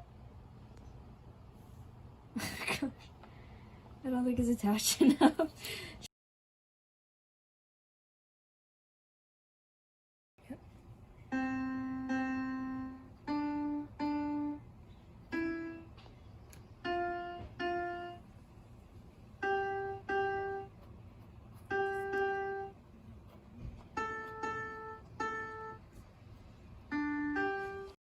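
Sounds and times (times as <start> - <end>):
electronic piano-like notes: 11.2 - 16.0, 16.7 - 18.3, 19.4 - 20.8, 21.6 - 25.9, 26.8 - 28.0.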